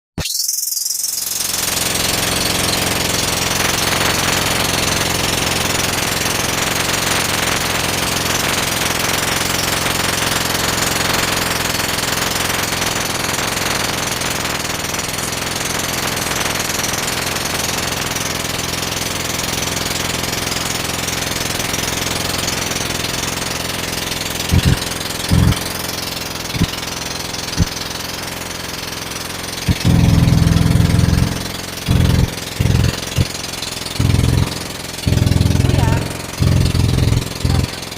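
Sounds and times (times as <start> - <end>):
motorboat engine running: 1.3 - 37.9
low thumps: 24.5 - 25.6, 29.7 - 33.4, 34.0 - 37.8.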